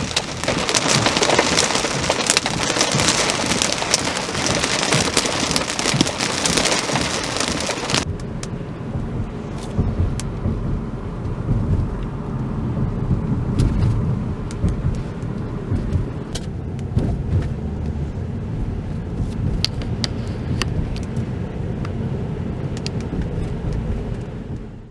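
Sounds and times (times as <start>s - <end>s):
heavy rain hissing: 0.0s - 8.1s
steady low rumble: 0.0s - 24.9s.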